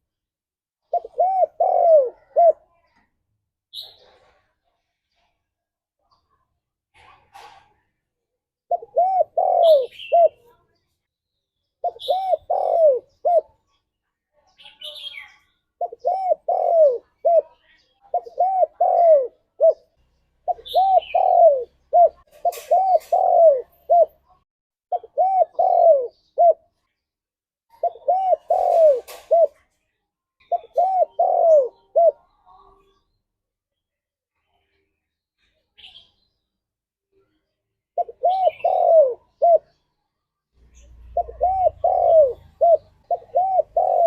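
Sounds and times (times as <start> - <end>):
dove cooing: 0.8 - 2.7, 8.7 - 10.5, 11.8 - 13.6, 15.8 - 26.6, 27.7 - 29.6, 30.4 - 32.3, 38.0 - 39.8, 40.6 - 44.0
faint bird chirps: 8.7 - 27.1, 27.7 - 44.0.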